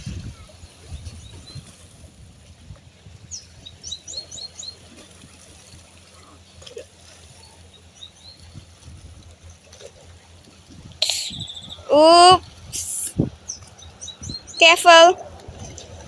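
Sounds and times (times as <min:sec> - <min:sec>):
bird chirping: 0:11.0 - 0:11.9.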